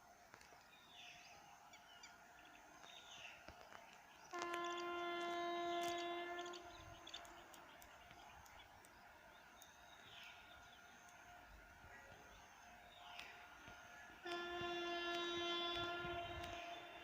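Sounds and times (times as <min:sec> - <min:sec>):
locomotive horn blast: 0:04.2 - 0:08.2, 0:12.7 - 0:17.0.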